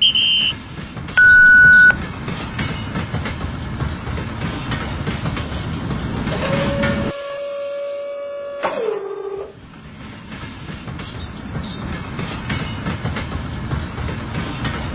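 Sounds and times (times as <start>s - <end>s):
electronic beep: 0.0s - 0.6s, 1.2s - 2.0s.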